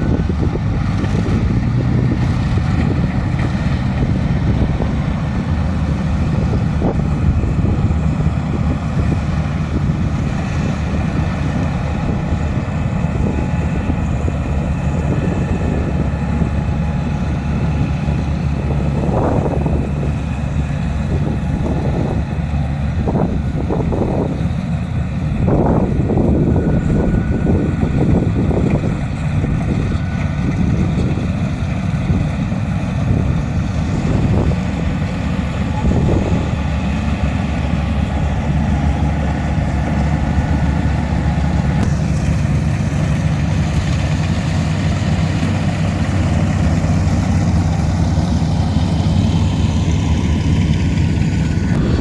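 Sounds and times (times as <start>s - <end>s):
diesel engine running under load: 0.0s - 52.0s
wind buffeting microphone: 0.0s - 52.0s.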